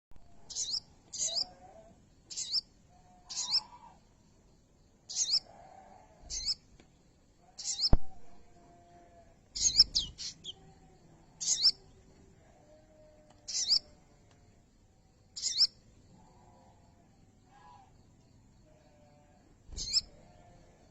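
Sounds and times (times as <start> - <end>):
bird high-pitched chirps: 0.4 - 1.5, 2.3 - 2.7, 3.3 - 3.8, 5.1 - 5.5, 6.3 - 6.6, 7.6 - 8.0, 9.6 - 10.6, 11.4 - 11.8, 13.5 - 13.9, 15.4 - 15.8, 19.8 - 20.1.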